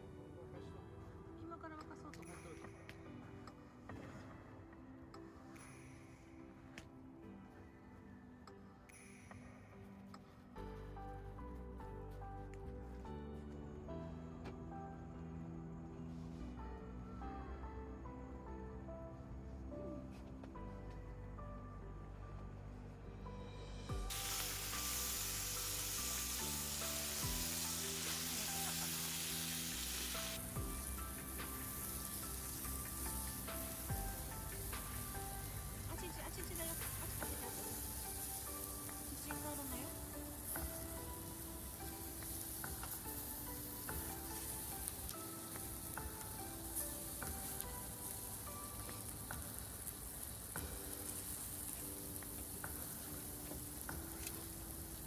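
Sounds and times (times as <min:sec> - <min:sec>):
soft background music: 0:00.0 - 0:55.0
campfire sizzling: 0:23.2 - 0:55.0.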